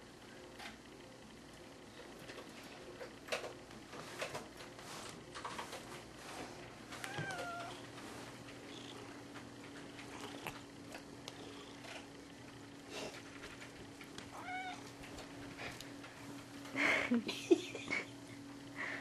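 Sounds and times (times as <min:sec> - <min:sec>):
rustling and tapping: 0:02.2 - 0:11.1
cat meowing: 0:07.0 - 0:07.8, 0:14.3 - 0:14.9.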